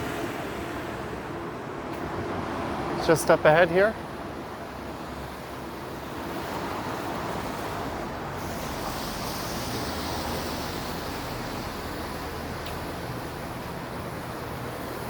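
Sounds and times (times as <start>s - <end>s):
tyres swishing on wet road: 0.0s - 15.0s.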